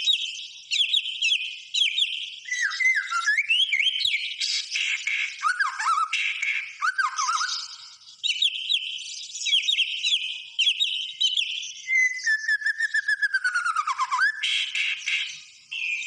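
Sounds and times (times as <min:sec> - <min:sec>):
bird singing whistled phrases: 0:00.0 - 0:16.0
long sliding bird whistle: 0:02.5 - 0:04.1, 0:05.0 - 0:08.0, 0:11.8 - 0:16.0.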